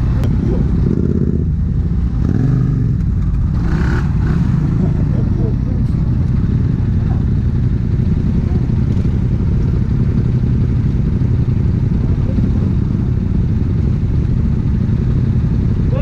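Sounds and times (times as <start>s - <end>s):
motorcycle engine ticking over: 2.8s - 16.0s
coach engine idling: 3.0s - 16.0s.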